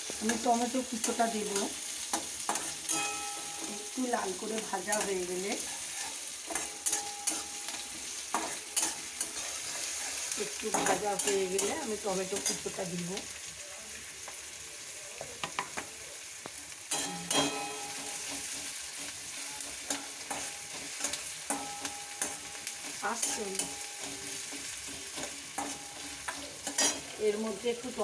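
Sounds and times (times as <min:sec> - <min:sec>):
onion sizzling in oil: 0:00.0 - 0:28.0
spatula scraping a pan: 0:00.1 - 0:03.9, 0:04.8 - 0:12.7, 0:16.9 - 0:27.4.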